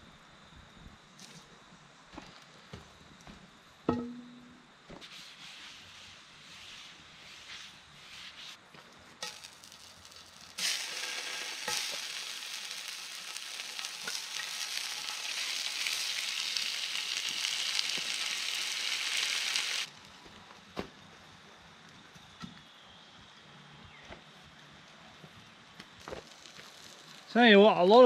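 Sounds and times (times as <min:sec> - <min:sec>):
sausages sizzling: 0:09.2 - 0:20.1, 0:26.0 - 0:27.8.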